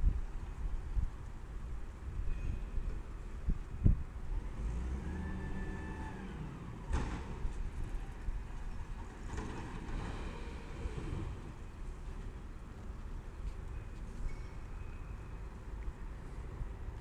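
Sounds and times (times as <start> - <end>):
garbage truck running: 4.7 - 11.7.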